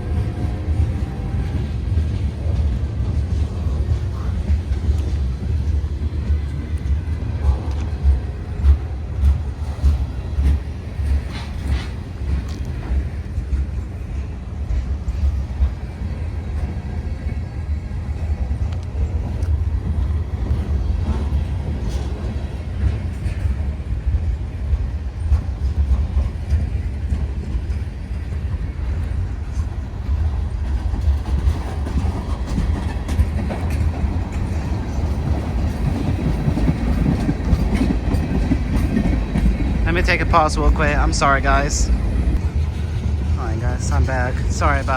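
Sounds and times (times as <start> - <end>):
train rumble: 0.0 - 44.9
wheels clacking over rail joints: 28.9 - 44.9.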